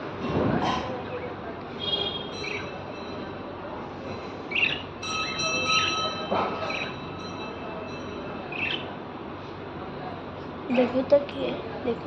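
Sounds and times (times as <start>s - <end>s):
lovebirds chirping: 2.0s - 3.2s, 4.4s - 7.2s, 8.5s - 9.0s.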